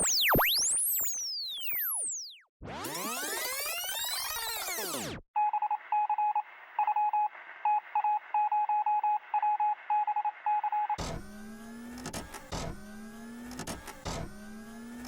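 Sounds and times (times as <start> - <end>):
whirring with rising pitch: 0.0 - 5.2, 11.0 - 15.0
electronic beeps in pulses: 0.0 - 11.1.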